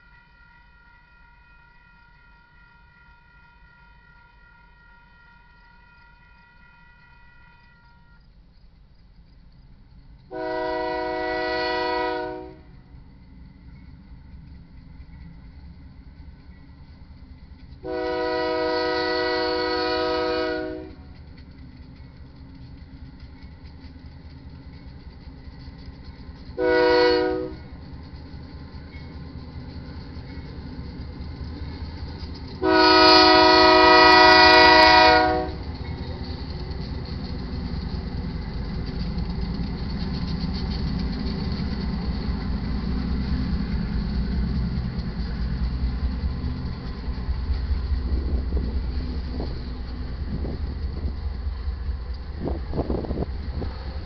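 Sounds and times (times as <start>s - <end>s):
locomotive air horn: 0.0s - 8.2s, 10.3s - 12.7s, 17.8s - 21.1s, 26.6s - 27.6s, 32.6s - 35.6s
train wheels rumbling on rail: 1.8s - 54.0s
clanks and rattles: 21.0s - 26.6s, 27.6s - 32.6s, 35.5s - 54.0s.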